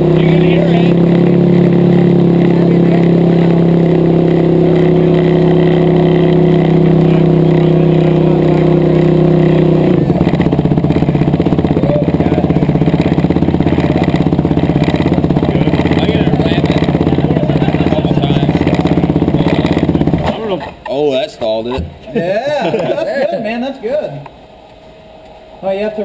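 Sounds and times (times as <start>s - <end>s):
engine running at high speed: 0.0s - 20.5s.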